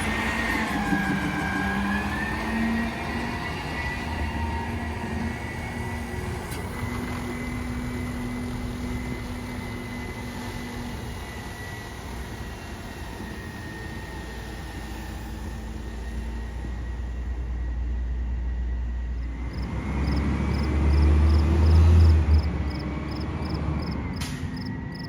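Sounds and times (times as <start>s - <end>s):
truck engine rumbling: 18.1s - 25.0s.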